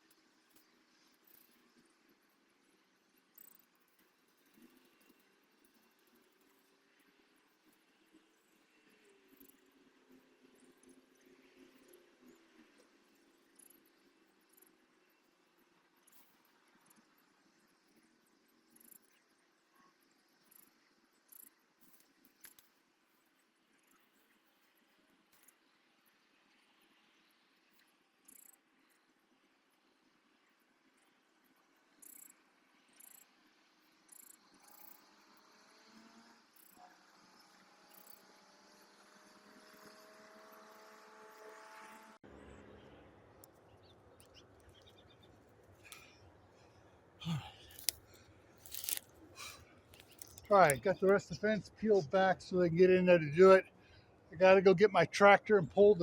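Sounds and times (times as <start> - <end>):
small clicks: 18.7 - 19.2, 20.4 - 22.8, 23.8 - 25.7, 27.8 - 28.6, 32.0 - 32.4, 33.0 - 33.3, 34.1 - 35.1, 36.6 - 38.9, 43.4 - 46.2, 47.6 - 51.2
soft clicks and rustles: 21.3 - 25.7, 47.6 - 51.2.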